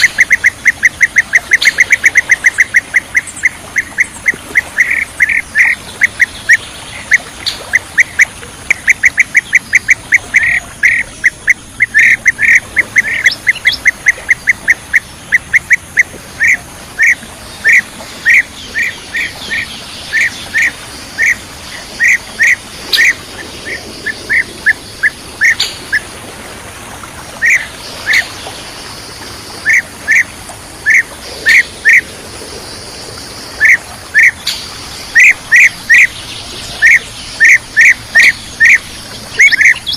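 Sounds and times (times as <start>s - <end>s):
higher-pitched bird calls: 0.0s - 26.0s, 27.4s - 28.4s, 33.6s - 39.9s
bee-eater calling sharp notes: 8.0s - 21.4s, 22.0s - 26.0s, 36.8s - 39.9s.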